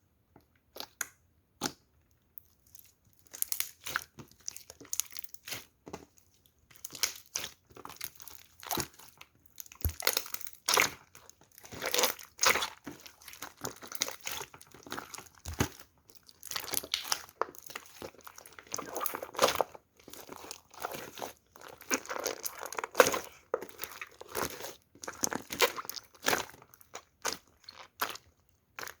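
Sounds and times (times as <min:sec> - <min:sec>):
slime squishing with sticky pops: 0:00.4 - 0:29.0.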